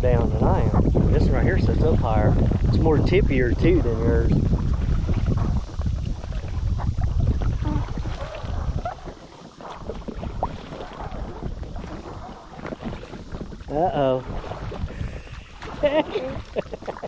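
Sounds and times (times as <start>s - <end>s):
wind rumbling on microphone: 0.0s - 17.0s
kayak paddle splashing in water: 4.5s - 17.0s.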